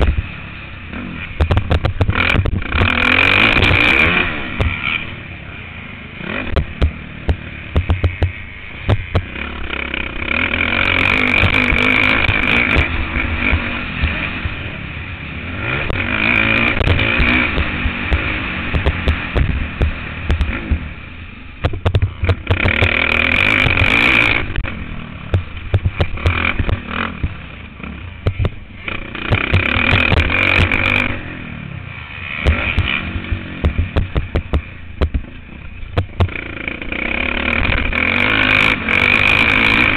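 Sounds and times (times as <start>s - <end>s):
motocross bike engine revving: 0.0s - 39.9s
bike knocks and rattles: 1.4s - 4.0s, 6.5s - 9.4s, 16.7s - 20.9s, 21.6s - 24.1s, 25.3s - 27.4s, 28.2s - 30.9s, 32.4s - 36.4s.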